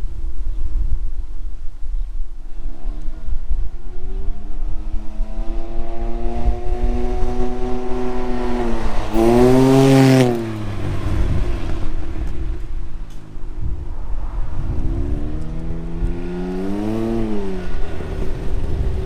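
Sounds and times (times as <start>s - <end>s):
three-wheeler engine passing: 2.6s - 19.0s
another engine note rising: 5.2s - 19.0s.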